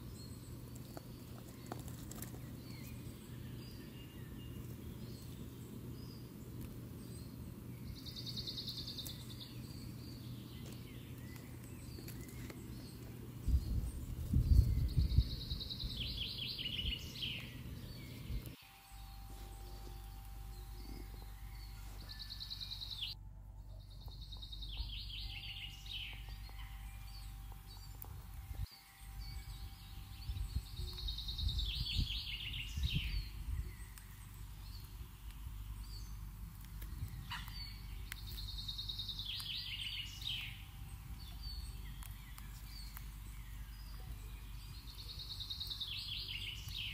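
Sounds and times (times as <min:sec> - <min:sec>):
songbird singing: 0:00.0 - 0:46.9.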